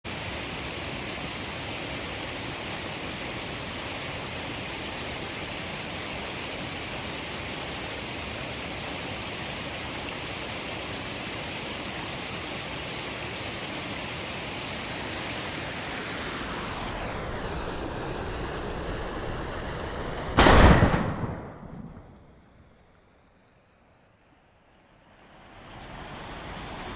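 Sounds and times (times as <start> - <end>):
rifle shot: 20.4 - 22.8.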